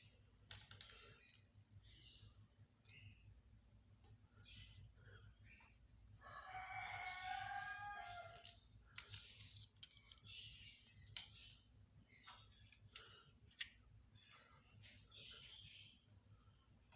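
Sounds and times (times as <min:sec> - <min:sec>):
plastic clicks: 0:08.4 - 0:10.4.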